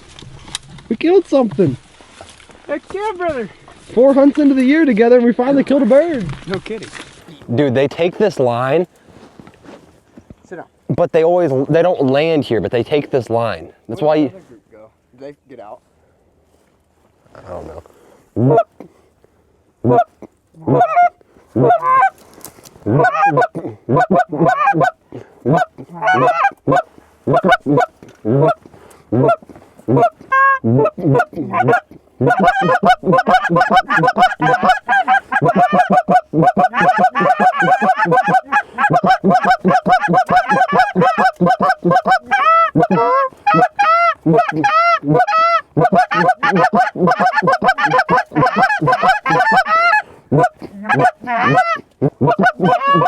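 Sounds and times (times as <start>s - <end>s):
goose honking and clucking: 18.4s - 18.7s, 19.8s - 22.2s, 22.8s - 53.0s.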